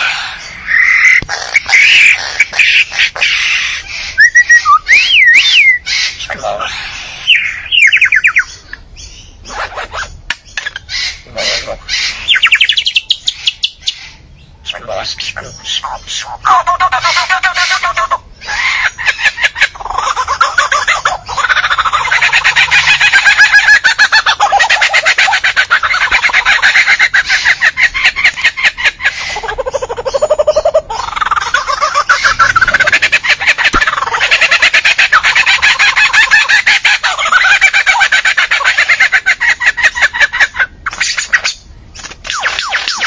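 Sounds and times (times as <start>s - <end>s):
bird chattering calls: 0.0s - 43.0s
sharp clicks: 28.3s - 28.6s
bird calling in rattling run: 30.0s - 38.0s.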